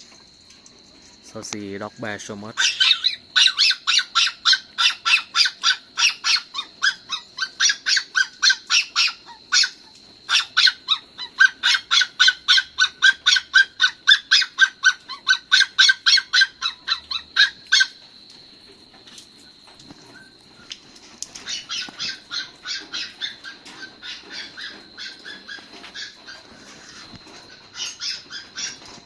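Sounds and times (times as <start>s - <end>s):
dog barking rapidly: 2.6s - 18.0s, 21.4s - 26.5s, 27.7s - 28.9s.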